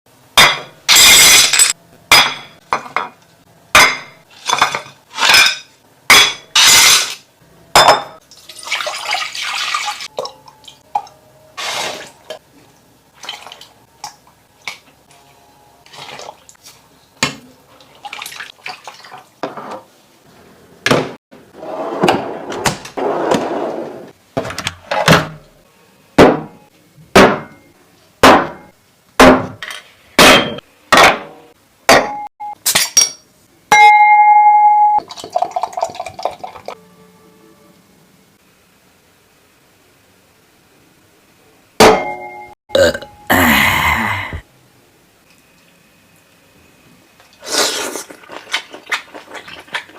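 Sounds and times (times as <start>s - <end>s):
dishes and utensils clinking: 3.8s - 7.2s, 7.8s - 8.8s
liquid pouring: 35.0s - 36.7s.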